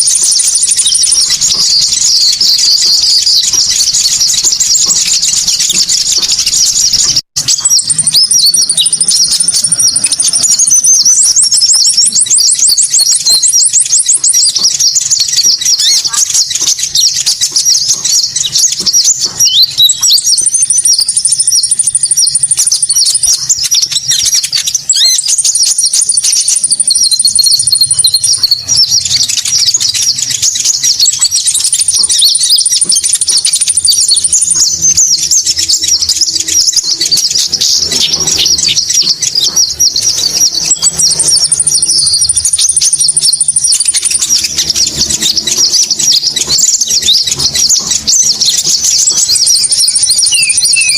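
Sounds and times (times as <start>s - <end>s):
songbirds chirping and twittering: 0.0s - 50.9s.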